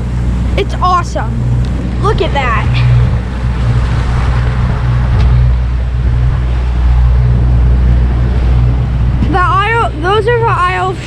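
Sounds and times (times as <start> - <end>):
motorboat engine humming: 0.0 - 11.0
rushing noise: 0.0 - 11.0.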